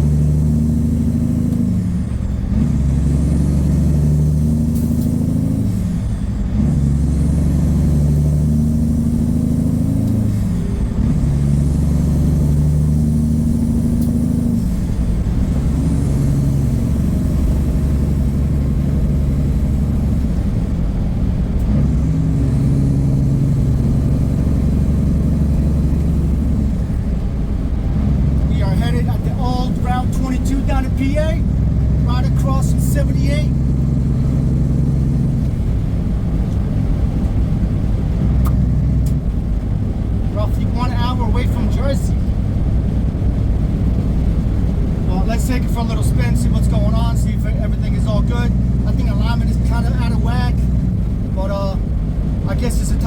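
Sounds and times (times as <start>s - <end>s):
truck diesel engine shifting gears: 0.0s - 53.0s.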